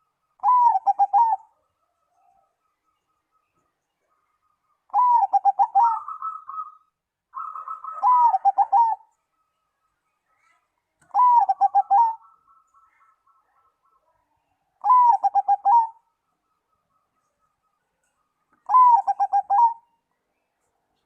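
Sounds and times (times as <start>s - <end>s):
dove cooing: 0.4s - 2.6s, 4.9s - 9.2s, 11.0s - 14.1s, 14.8s - 16.2s, 18.6s - 20.0s.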